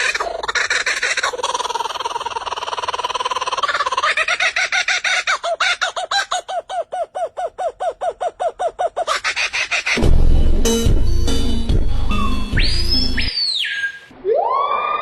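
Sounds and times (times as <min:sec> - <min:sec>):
bird calling: 0:12.1 - 0:14.1.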